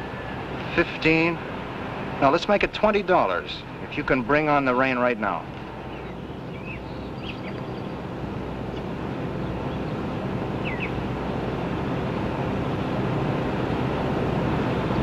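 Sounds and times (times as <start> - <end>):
engine drone: 0.0 - 15.0
bird chirping: 5.8 - 8.1, 10.6 - 11.1.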